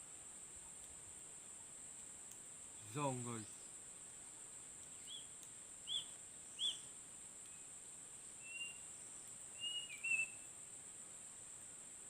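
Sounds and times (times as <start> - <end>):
bird chirping: 5.0 - 6.8, 9.6 - 10.4
bird whistled notes: 8.4 - 8.8, 9.6 - 10.4.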